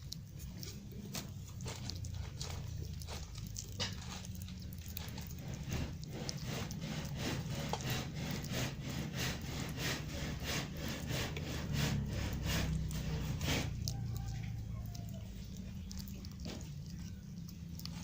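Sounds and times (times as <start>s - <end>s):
kitten chewing and crunching: 0.0s - 18.0s.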